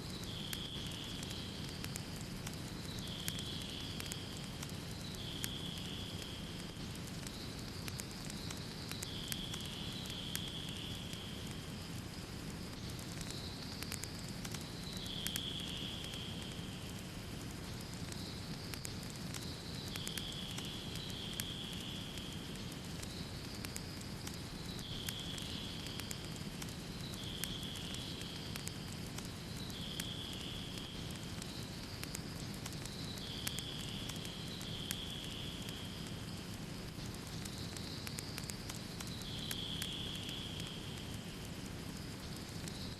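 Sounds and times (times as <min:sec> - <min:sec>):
fire rumbling in fireplace: 0:00.0 - 0:15.1, 0:16.0 - 0:29.7
fire crackling and popping: 0:00.0 - 0:42.9.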